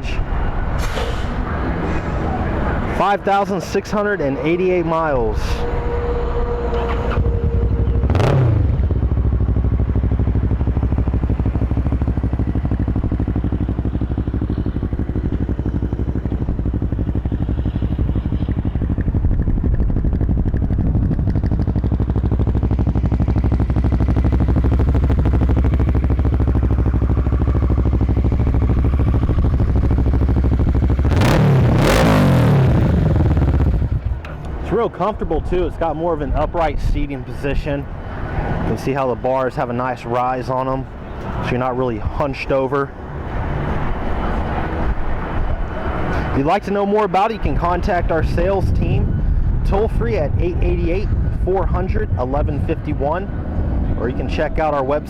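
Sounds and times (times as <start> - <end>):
motorcycle throttle blips: 5.4 - 34.8
motorcycle engine idling: 5.6 - 31.2.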